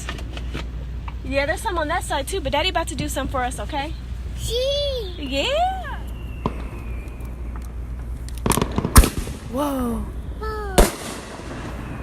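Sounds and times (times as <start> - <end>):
firework bangs: 10.8 - 11.8.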